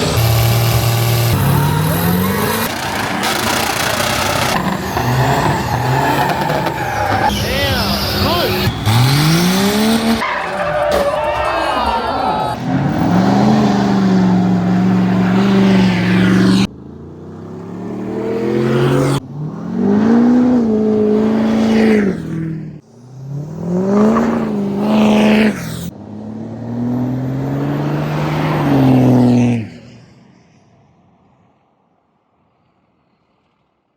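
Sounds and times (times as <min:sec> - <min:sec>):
vehicle engine revving hard: 0:00.0 - 0:11.5, 0:12.5 - 0:29.7.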